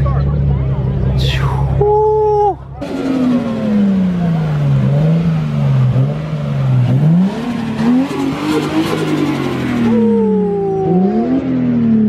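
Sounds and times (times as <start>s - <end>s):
car engine revving: 2.8s - 12.0s.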